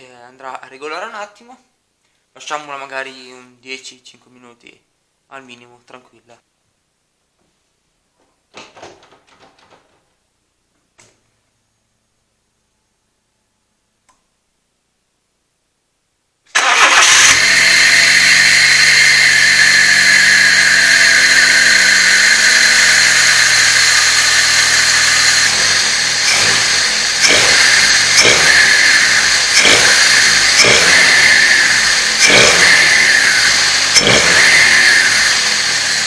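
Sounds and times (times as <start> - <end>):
car engine starting and idling: 16.5 - 36.0
engine revving: 16.6 - 36.0.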